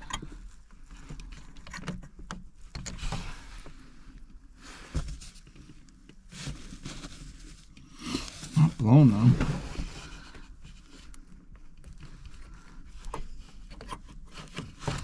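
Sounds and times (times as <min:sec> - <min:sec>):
small clicks and knocks: 0:01.0 - 0:03.2.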